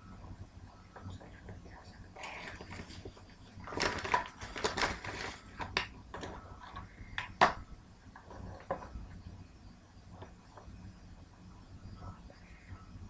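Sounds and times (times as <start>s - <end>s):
packaging rustling: 2.2s - 6.4s.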